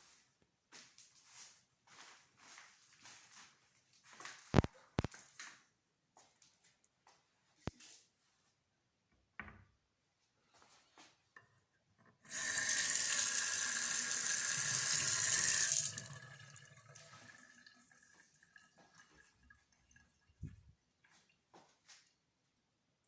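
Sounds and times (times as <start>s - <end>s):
faint water dripping: 12.2s - 22.2s.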